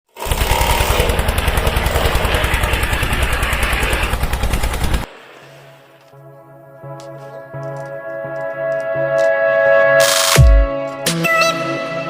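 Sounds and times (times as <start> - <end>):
engine puttering: 0.1 - 5.2.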